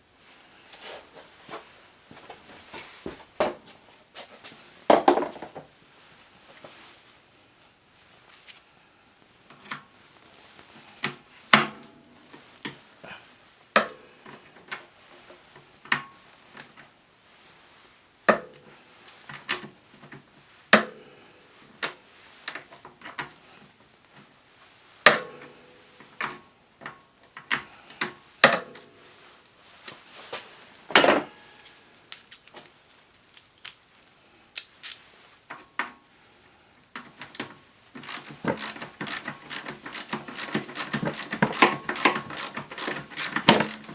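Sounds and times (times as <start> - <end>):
fast clicking: 38.0 - 43.9.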